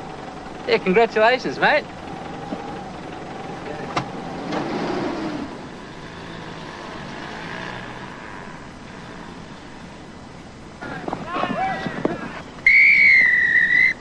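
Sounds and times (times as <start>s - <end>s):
vehicle engine pulling away: 0.0s - 11.2s.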